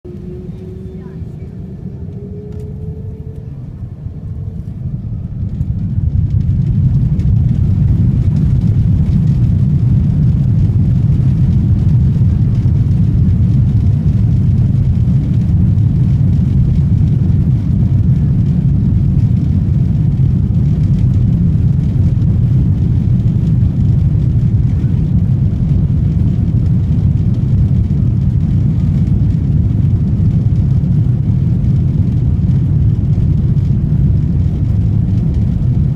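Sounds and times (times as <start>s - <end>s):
faint rising whine: 0.0s - 8.8s
jet engines rumbling: 0.0s - 35.9s.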